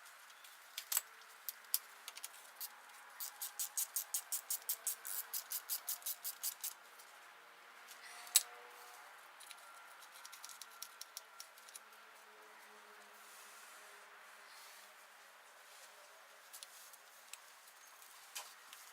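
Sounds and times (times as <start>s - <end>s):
ratchet wrench clicking: 2.6s - 6.8s.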